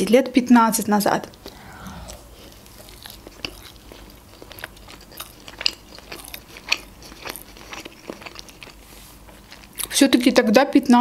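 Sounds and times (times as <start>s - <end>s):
woman chewing: 3.0s - 9.9s.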